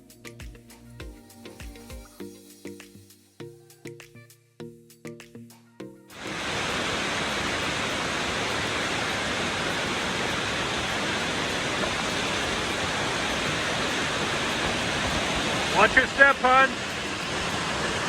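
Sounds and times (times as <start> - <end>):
waterfall rushing: 6.2 - 18.0.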